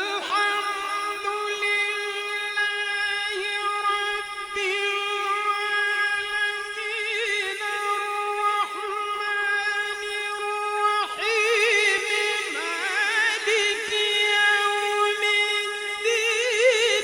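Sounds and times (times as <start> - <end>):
man reciting melodically: 0.0 - 17.0.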